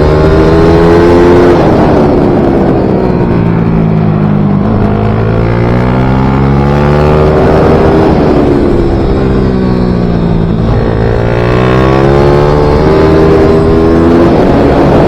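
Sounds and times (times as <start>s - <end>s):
small motorcycle engine at full throttle: 0.0s - 15.0s.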